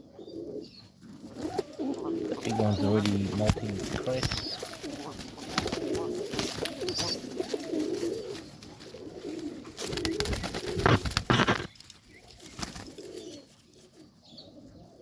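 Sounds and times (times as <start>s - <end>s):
pigeons cooing: 0.0s - 15.0s
scuffs and rustles: 1.0s - 14.1s.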